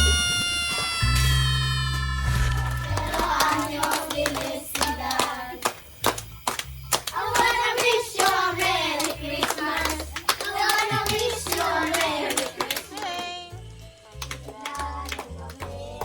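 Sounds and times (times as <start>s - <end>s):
low bass notes: 0.0s - 5.1s
percussion strikes: 0.0s - 15.2s
children singing: 1.9s - 6.2s, 7.0s - 16.0s
hand claps: 2.3s - 16.0s.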